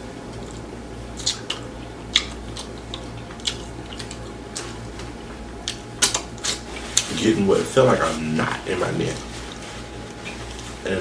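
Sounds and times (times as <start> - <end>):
person chewing: 8.4 - 8.7.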